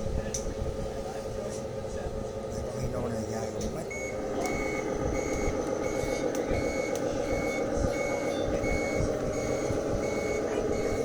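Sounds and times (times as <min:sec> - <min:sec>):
reversing beeper: 0:03.9 - 0:11.0.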